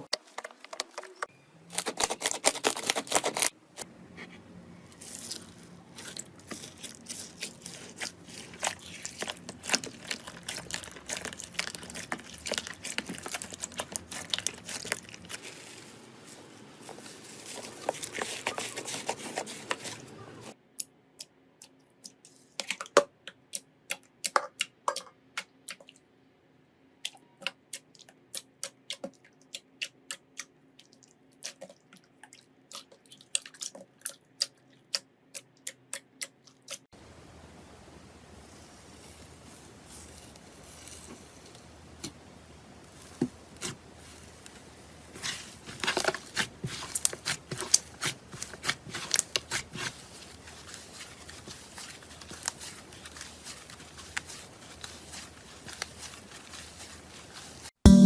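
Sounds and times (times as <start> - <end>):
slime crackling and popping: 5.0 - 15.6, 43.5 - 58.0.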